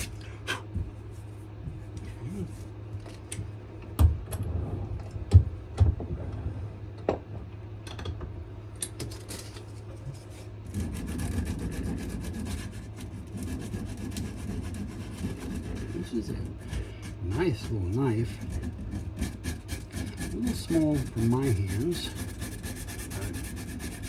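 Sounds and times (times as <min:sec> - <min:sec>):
steady low hum: 0:00.0 - 0:24.0
sandpaper rubbing on wood: 0:10.7 - 0:24.0.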